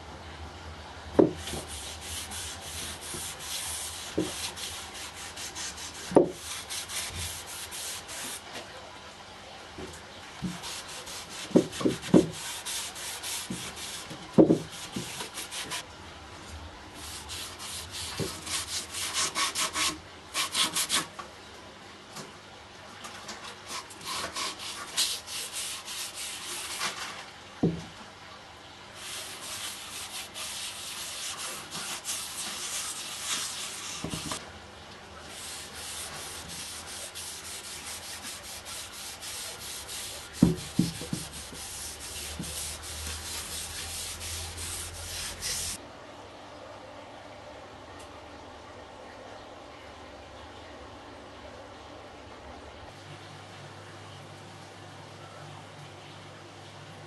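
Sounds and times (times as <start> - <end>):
hand sanding wood: 1.4 - 8.4, 10.4 - 15.8, 17.0 - 21.1, 23.7 - 26.9, 29.0 - 34.4, 35.3 - 45.8.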